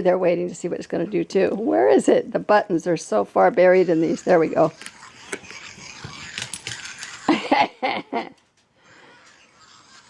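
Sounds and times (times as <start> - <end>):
toy mechanical clicking and rattling: 4.7 - 7.3.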